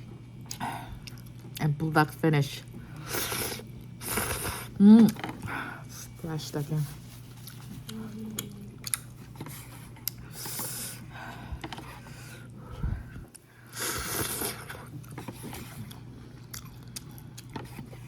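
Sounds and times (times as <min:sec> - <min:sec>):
person chewing: 0:00.4 - 0:01.6, 0:07.3 - 0:12.2, 0:13.1 - 0:18.0.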